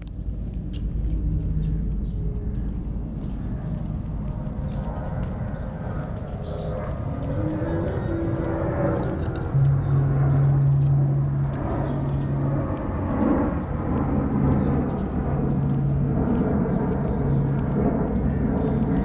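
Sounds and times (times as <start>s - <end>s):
low hum: 0.0s - 19.0s
wind on microphone: 0.0s - 19.0s.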